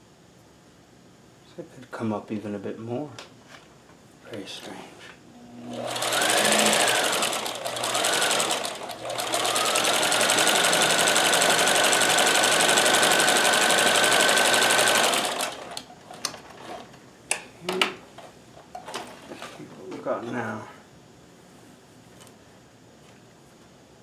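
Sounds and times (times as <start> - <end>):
sewing machine motor running: 5.6 - 16.9.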